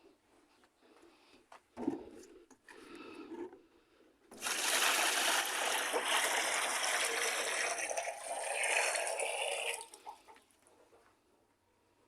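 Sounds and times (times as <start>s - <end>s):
water pouring: 4.3s - 10.2s.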